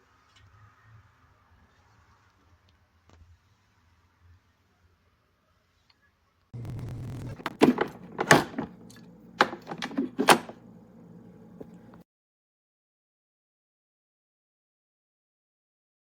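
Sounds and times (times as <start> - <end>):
steady low hum: 6.6 - 12.0
sharp knocks and clunks: 7.4 - 10.6.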